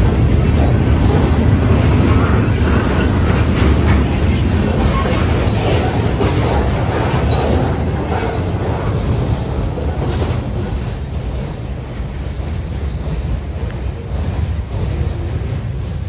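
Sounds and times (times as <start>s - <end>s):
train rolling past: 0.0s - 16.0s.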